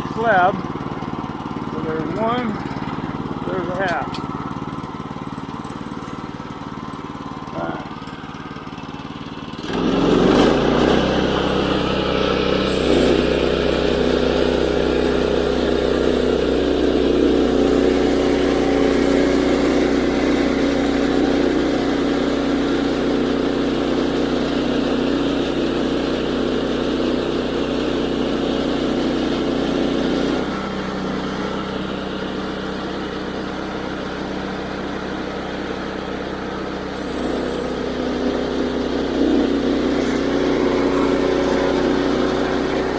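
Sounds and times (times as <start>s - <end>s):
gas engine running: 0.0s - 42.9s
band saw blade cutting log: 9.6s - 24.1s, 36.9s - 42.9s.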